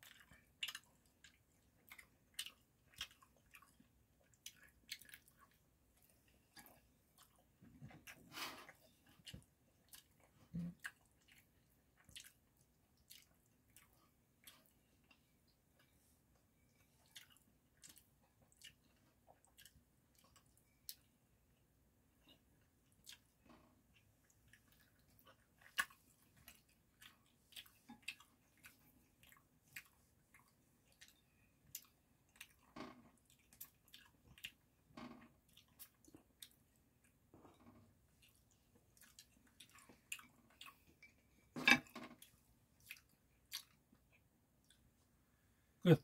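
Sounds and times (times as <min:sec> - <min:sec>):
quiet chewing: 0:00.0 - 0:45.9.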